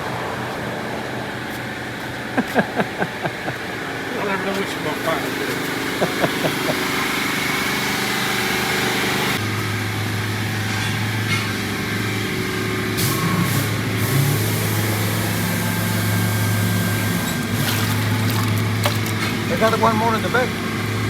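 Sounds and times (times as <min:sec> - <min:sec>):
small engine humming: 0:00.0 - 0:11.1.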